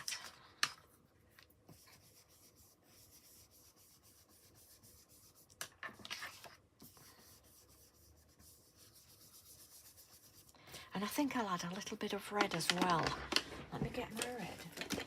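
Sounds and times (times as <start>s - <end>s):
ink blending tool rubbing paper: 1.7s - 10.5s.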